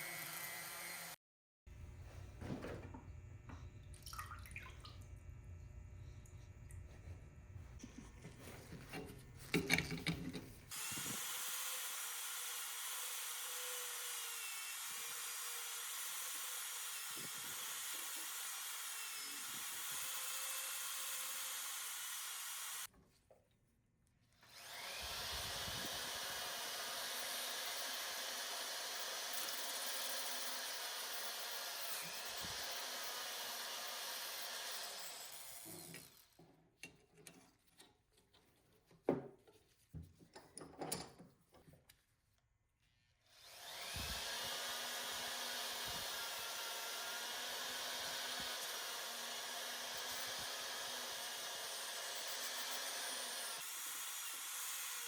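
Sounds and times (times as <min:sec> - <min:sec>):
small power tool running: 0:00.0 - 0:01.2, 0:10.7 - 0:22.9, 0:24.4 - 0:36.4, 0:43.3 - 0:55.0.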